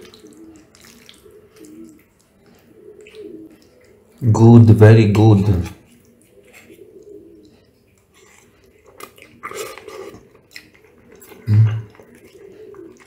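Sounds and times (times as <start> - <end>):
person chewing: 0.0 - 4.2, 5.6 - 13.0
person humming: 11.4 - 11.9.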